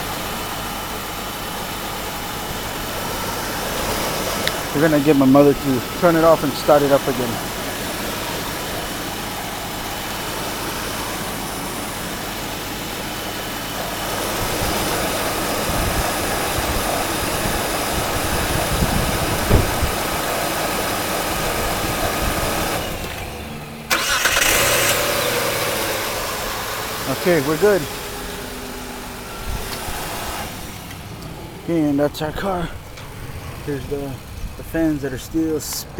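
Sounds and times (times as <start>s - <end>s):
car engine idling: 0.0s - 35.9s
car engine starting: 0.0s - 35.9s
radiator cooling fans running: 0.0s - 35.9s.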